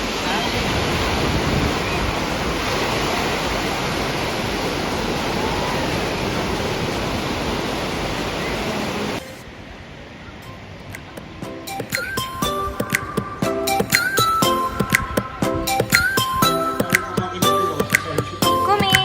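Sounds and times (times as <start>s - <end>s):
rushing water: 0.0s - 9.4s.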